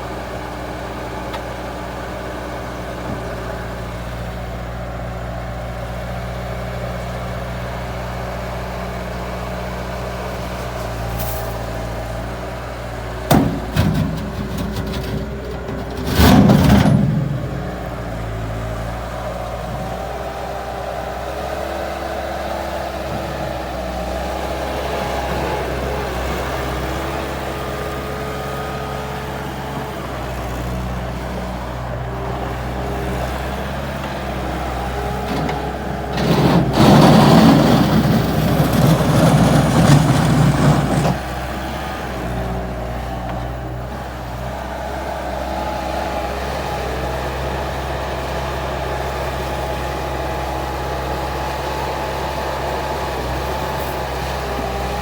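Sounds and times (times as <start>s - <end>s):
loader diesel engine running: 0.0s - 55.0s.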